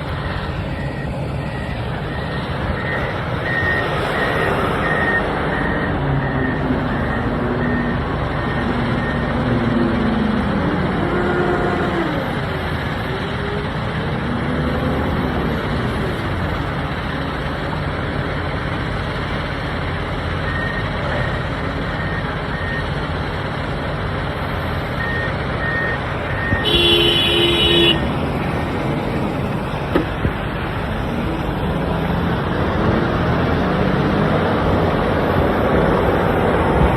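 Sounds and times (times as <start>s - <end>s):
reversing alarm beeping: 0.0s - 10.1s, 20.4s - 23.0s, 25.0s - 29.4s
diesel engine running: 0.0s - 36.9s
vehicle horn: 26.5s - 28.2s.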